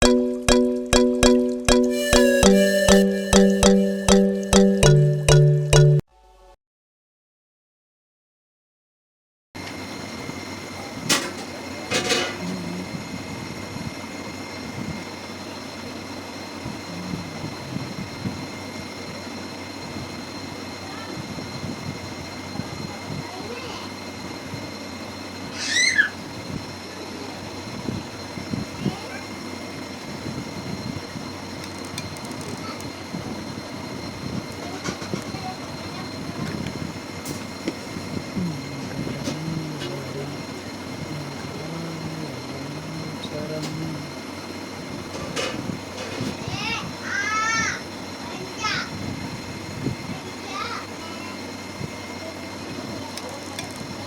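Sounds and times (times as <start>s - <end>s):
steady hum: 11.8s - 15.2s, 16.5s - 20.6s, 30.2s - 46.1s.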